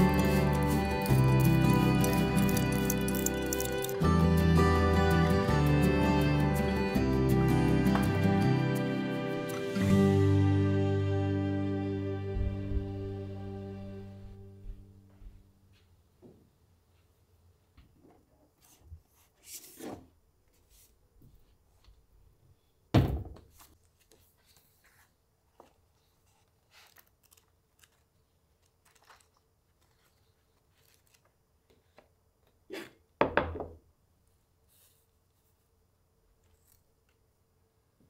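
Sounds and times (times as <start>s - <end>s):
rustling book pages: 0.0s - 4.0s, 18.5s - 22.0s, 23.5s - 32.2s, 34.7s - 35.7s, 36.4s - 37.2s.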